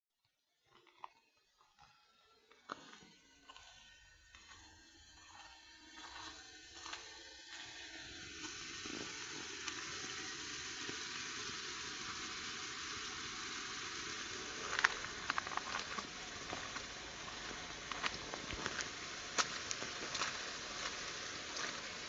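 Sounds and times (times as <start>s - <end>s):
rain falling: 8.9s - 22.0s.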